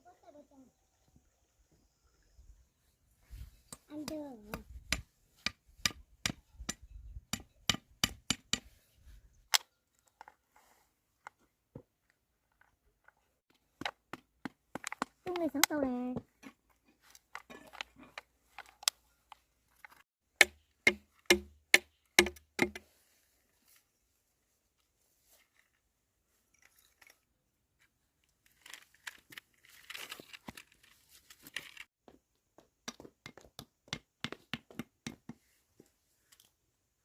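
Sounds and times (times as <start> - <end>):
rustling and crinkling: 23.0 - 31.9.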